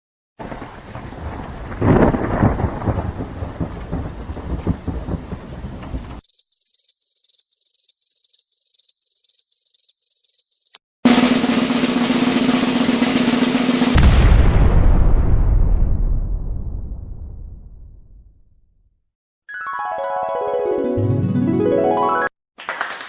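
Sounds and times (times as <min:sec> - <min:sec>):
rain: 0:00.4 - 0:06.2
thunder rumbling: 0:00.4 - 0:06.2, 0:13.9 - 0:18.3
drum roll: 0:11.0 - 0:16.9.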